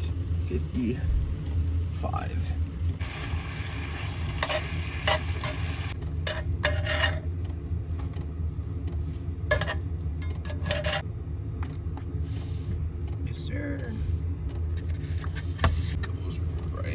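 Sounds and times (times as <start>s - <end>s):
low hum: 0.0s - 16.9s
meat sizzling in a frying pan: 3.0s - 6.9s
utensil scraping a pan: 4.3s - 7.4s, 9.5s - 11.0s.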